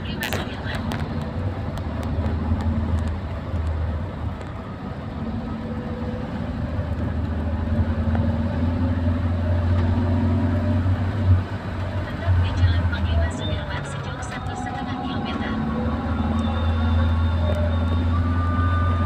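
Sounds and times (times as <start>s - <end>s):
car engine hum: 0.0s - 19.0s
road noise: 0.0s - 19.0s.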